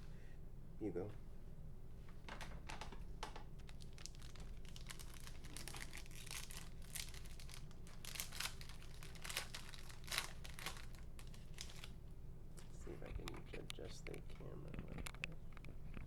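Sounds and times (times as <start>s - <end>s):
plastic wrapper tearing and crinkling: 3.5s - 11.9s.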